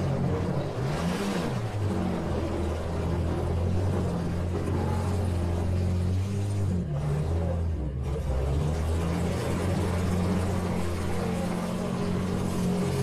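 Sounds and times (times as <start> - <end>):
minivan engine revving: 0.0 - 10.7
low engine drone: 0.0 - 13.0.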